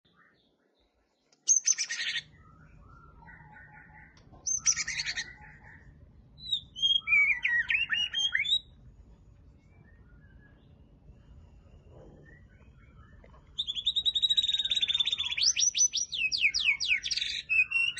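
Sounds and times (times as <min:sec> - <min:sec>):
bird singing whistled phrases: 0:01.5 - 0:05.7, 0:06.4 - 0:08.7, 0:09.7 - 0:10.9, 0:11.7 - 0:17.9.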